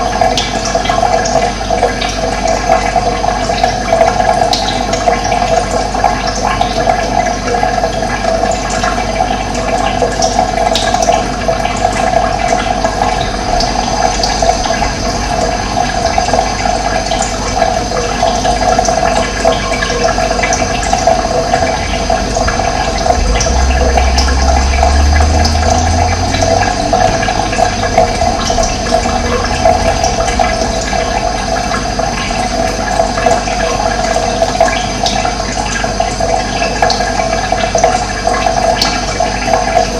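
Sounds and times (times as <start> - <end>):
running water gurgling: 0.0 - 39.9
low rumble: 12.7 - 18.2, 20.2 - 33.8.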